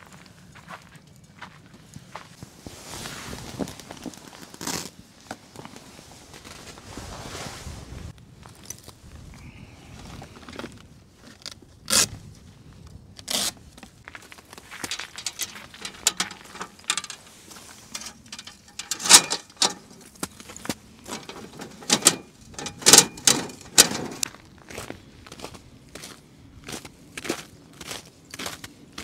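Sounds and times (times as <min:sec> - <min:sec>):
irregular crunches and clatters: 0:13.2 - 0:24.9.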